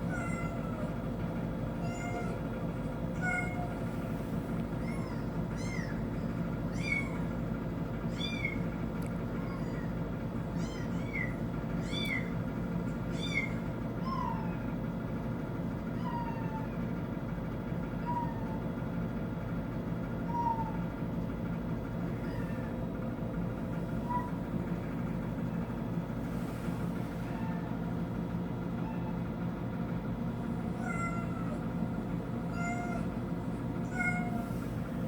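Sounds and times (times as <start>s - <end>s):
steady low hum: 0.0s - 35.0s
kitten meowing: 0.1s - 1.0s, 1.8s - 2.4s, 3.2s - 3.9s, 4.8s - 7.3s, 8.1s - 8.7s, 9.4s - 10.0s, 10.6s - 12.4s, 13.1s - 14.7s, 18.0s - 18.6s, 20.3s - 20.8s, 22.1s - 22.8s, 24.0s - 24.4s, 27.2s - 27.8s, 28.8s - 29.2s, 30.7s - 31.6s, 32.5s - 33.1s, 33.8s - 34.6s.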